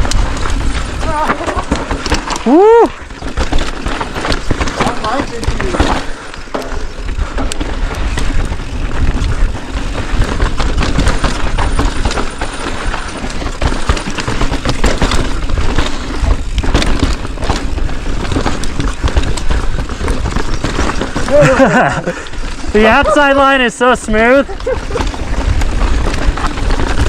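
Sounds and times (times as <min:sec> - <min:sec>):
bike clattering knocks: 0:00.0 - 0:07.5
tyres rolling over dirt: 0:00.0 - 0:27.0.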